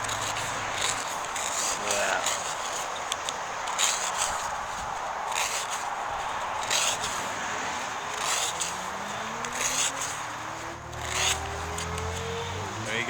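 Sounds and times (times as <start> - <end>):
axe blade slicing paper: 0.0 - 12.6
vehicle engine rising in pitch: 8.6 - 13.0.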